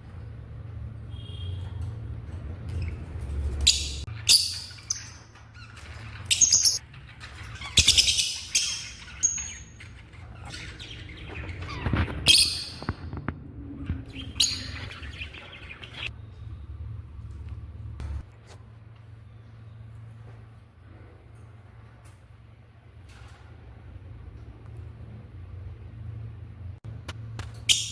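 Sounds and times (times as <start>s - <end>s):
birds squawking: 3.6s - 12.9s, 13.9s - 16.1s.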